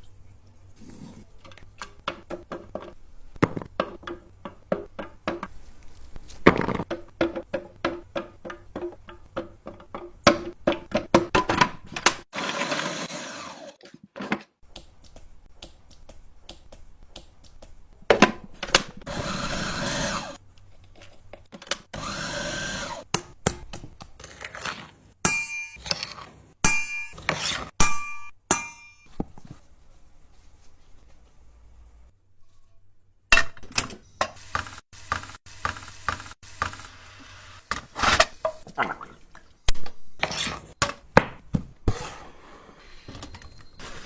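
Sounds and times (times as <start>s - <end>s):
utensils knocking and clattering: 6.4s - 12.3s
electric blender grinding: 12.3s - 13.8s, 19.1s - 20.4s, 22.0s - 23.0s.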